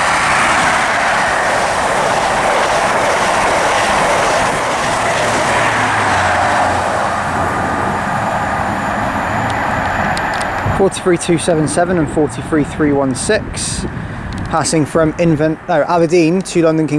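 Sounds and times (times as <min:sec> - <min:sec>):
low drone: 0:00.0 - 0:13.0
train wheels rushing on rail: 0:00.0 - 0:16.9.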